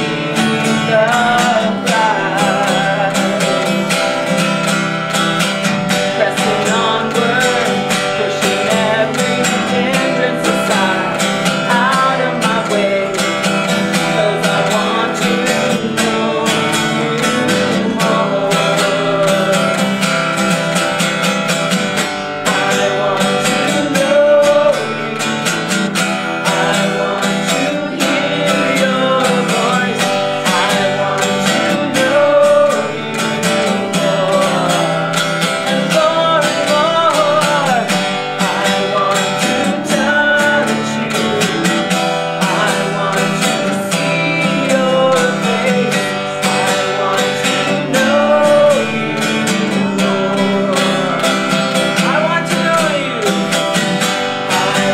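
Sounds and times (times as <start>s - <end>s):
acoustic guitar strumming: 0.0s - 54.9s.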